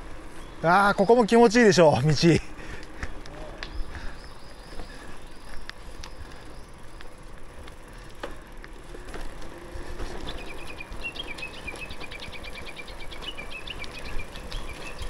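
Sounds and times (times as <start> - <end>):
bicycle rolling on rough pavement: 0.0 - 15.0
bird chirping rapidly: 10.2 - 15.0.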